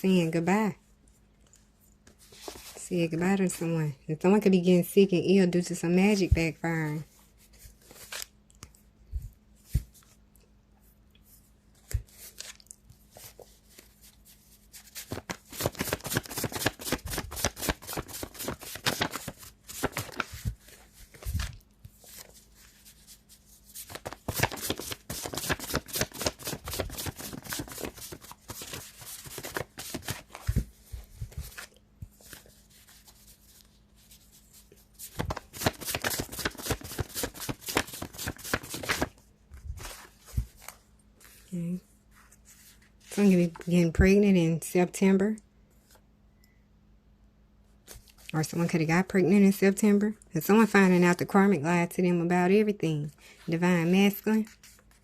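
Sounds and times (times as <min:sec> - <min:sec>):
cards being shuffled by hand: 0:02.1 - 0:02.8, 0:11.8 - 0:41.5.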